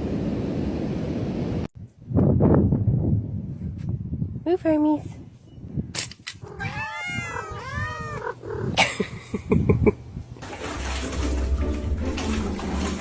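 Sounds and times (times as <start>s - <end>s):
cat meowing: 6.4s - 8.8s.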